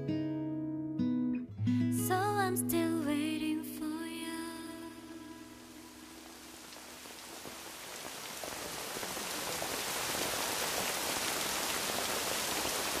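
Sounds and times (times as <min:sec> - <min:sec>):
steady rain: 0:04.0 - 0:13.0
raindrops ticking: 0:05.4 - 0:13.0.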